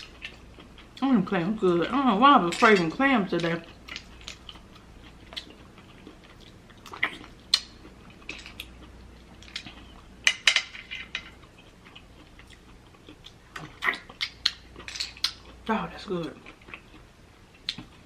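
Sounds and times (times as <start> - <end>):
soft chewing: 0.0 - 18.0.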